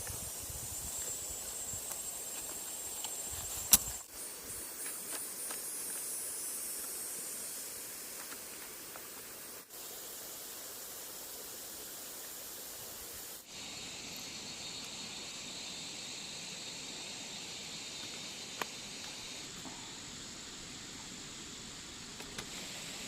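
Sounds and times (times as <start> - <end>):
high-pitched outdoor hiss: 0.0 - 23.0
sharp click: 3.0 - 4.0.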